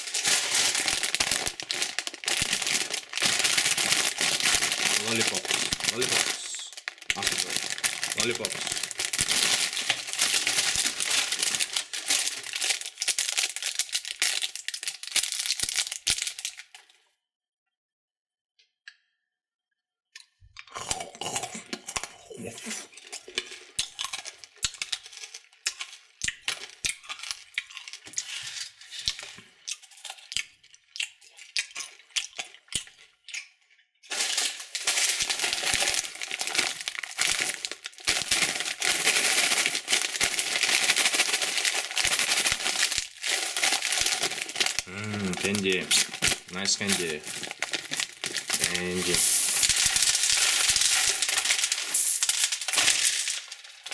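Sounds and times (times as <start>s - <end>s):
candy pieces clinking: 0.0s - 16.8s, 34.1s - 53.9s
candy wrappers crinkling: 0.0s - 17.0s, 21.0s - 33.2s, 34.0s - 53.9s.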